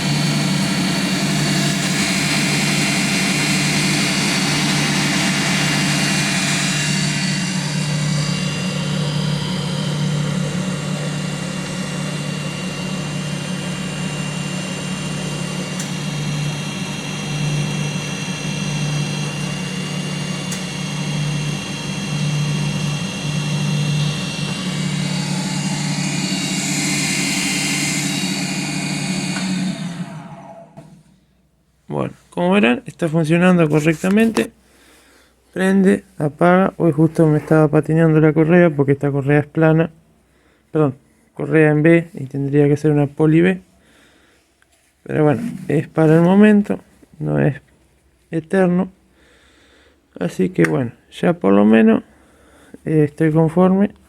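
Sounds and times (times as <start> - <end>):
alternator humming with a whine: 0.0 - 31.5.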